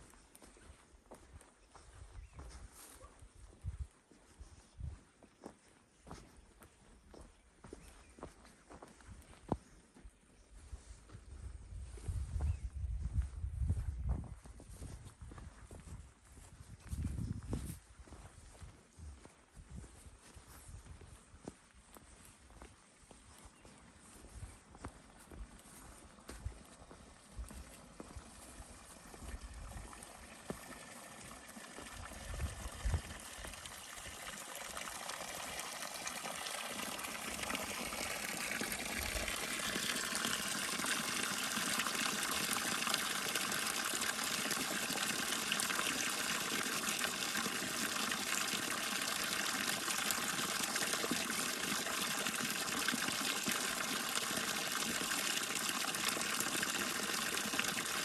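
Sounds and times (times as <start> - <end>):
rushing water: 27.2 - 58.0.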